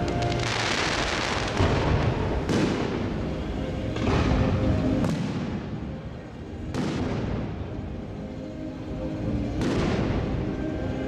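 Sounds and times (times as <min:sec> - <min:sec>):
fireworks crackling and hissing: 0:00.0 - 0:07.7.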